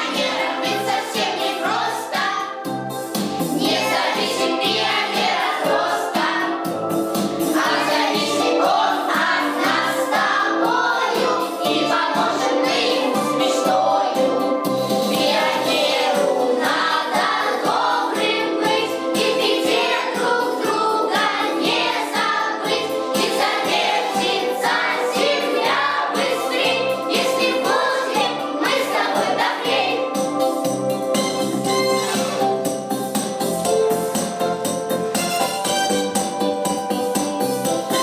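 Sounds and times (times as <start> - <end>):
choir singing: 0.0 - 2.6, 3.6 - 6.7, 7.4 - 30.4
instrumental backing track: 0.0 - 38.0.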